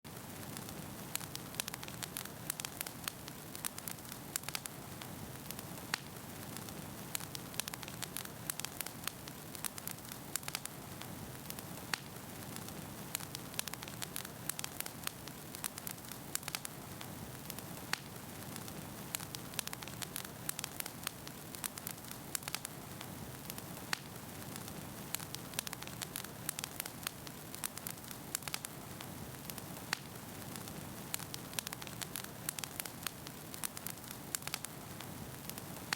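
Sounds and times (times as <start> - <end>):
campfire crackling and popping: 0.1 - 35.9.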